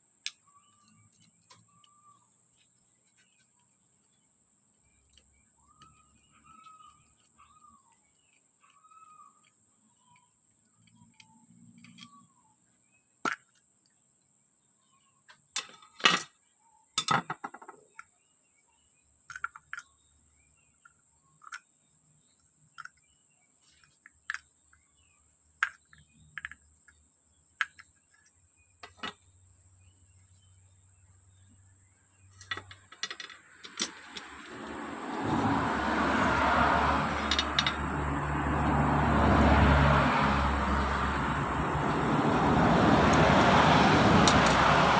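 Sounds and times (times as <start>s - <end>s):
bird chirping: 0.0s - 44.9s
metal parts and tools clicking: 27.6s - 29.3s, 32.3s - 34.8s, 37.1s - 37.9s, 43.1s - 44.9s.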